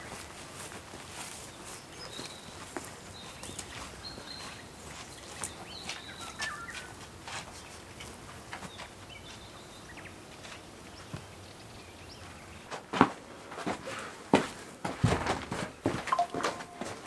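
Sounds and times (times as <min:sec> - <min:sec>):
high bird whistles: 0:06.1 - 0:06.9.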